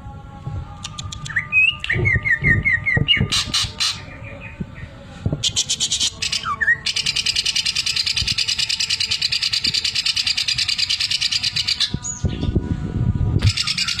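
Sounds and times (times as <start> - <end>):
bird fast rattling song: 13.4 - 14.0.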